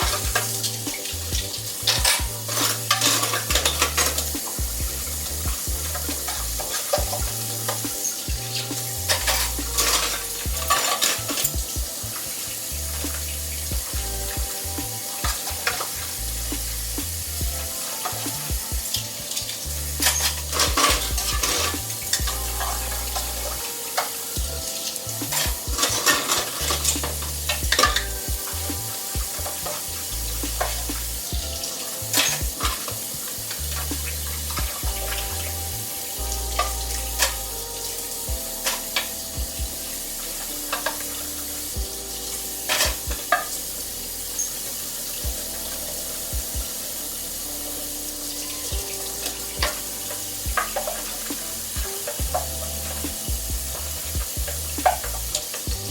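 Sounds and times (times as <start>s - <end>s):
dishes and utensils clinking: 0.0s - 16.8s, 17.6s - 35.2s
background music: 0.0s - 55.9s
steady hiss: 0.0s - 55.9s.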